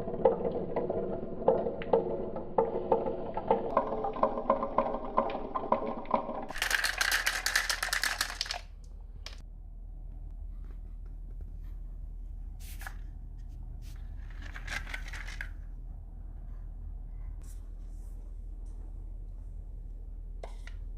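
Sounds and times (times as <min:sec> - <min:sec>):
marbles clattering down wooden run: 0:02.9 - 0:08.7.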